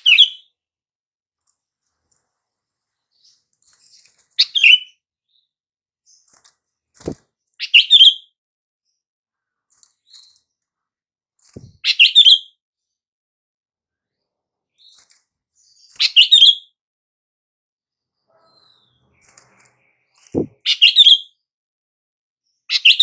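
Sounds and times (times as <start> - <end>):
bulbul calling: 20.4 - 21.0.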